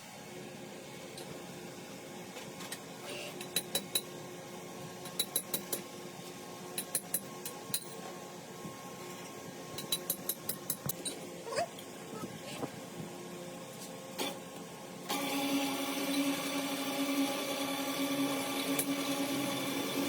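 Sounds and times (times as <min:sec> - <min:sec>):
low workshop hum: 0:00.0 - 0:20.0.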